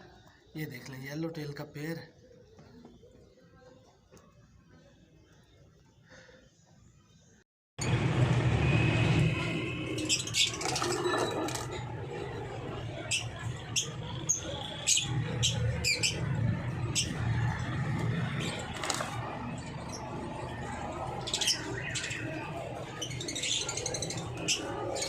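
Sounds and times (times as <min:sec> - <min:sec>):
parrots chirping and squawking: 0:09.7 - 0:25.0.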